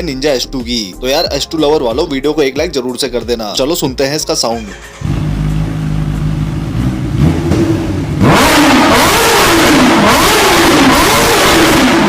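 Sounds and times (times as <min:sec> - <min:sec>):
motorcycle engine revving: 0:04.7 - 0:12.0.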